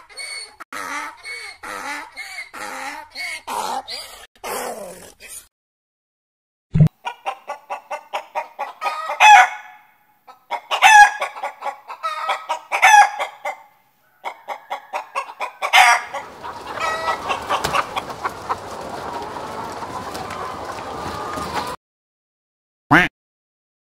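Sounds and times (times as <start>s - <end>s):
hen cackling: 0.0s - 4.2s, 7.0s - 21.8s.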